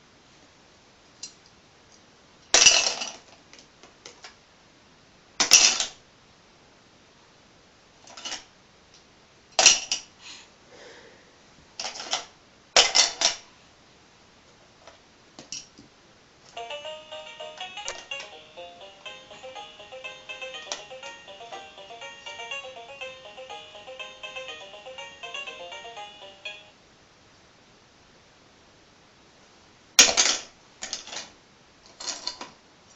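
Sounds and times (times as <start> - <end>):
electronic toy tune: 16.6 - 26.7.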